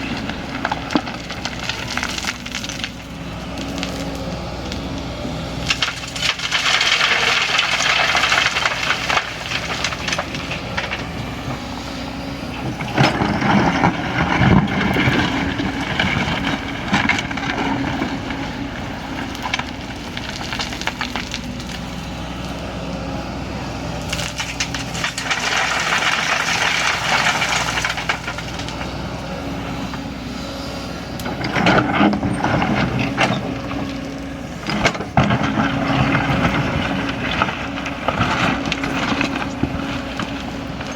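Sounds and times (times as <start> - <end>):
excavator diesel engine running: 0.0 - 40.9
machine scraping and knocking: 12.5 - 21.8, 24.0 - 28.9, 31.2 - 40.9.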